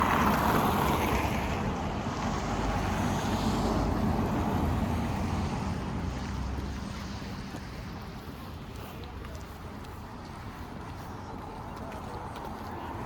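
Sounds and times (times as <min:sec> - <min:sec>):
car road noise: 0:00.0 - 0:06.8.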